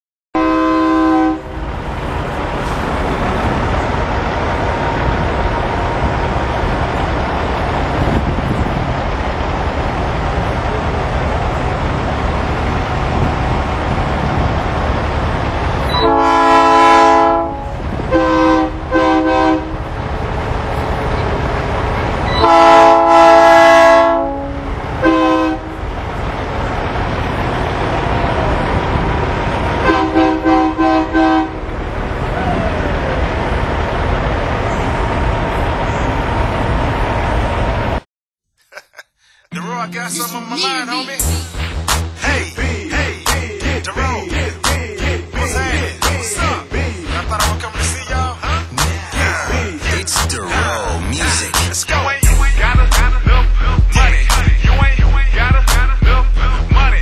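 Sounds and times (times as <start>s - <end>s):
truck air horn blasts: 0.4s - 1.6s, 15.9s - 19.8s, 22.3s - 25.8s, 29.8s - 31.6s
steady background rumble: 40.6s - 57.0s.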